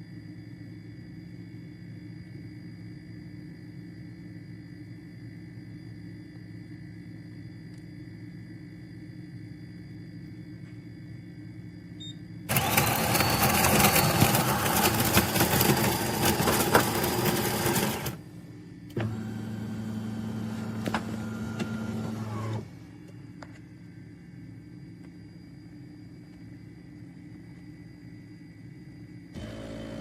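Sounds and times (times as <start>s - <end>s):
espresso machine running: 12.5s - 18.3s, 19.0s - 22.7s, 29.4s - 30.0s.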